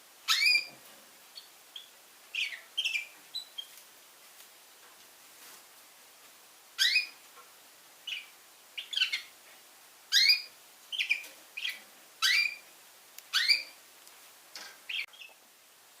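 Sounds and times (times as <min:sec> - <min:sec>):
canary chirping: 0:00.2 - 0:03.8, 0:06.8 - 0:07.2, 0:08.0 - 0:09.4, 0:10.1 - 0:12.7, 0:13.3 - 0:13.8, 0:14.6 - 0:15.4.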